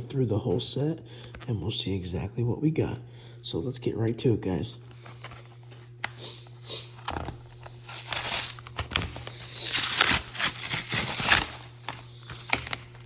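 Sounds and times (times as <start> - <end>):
steady low hum: 0.0 - 13.0
packaging torn and crinkled: 7.1 - 13.0.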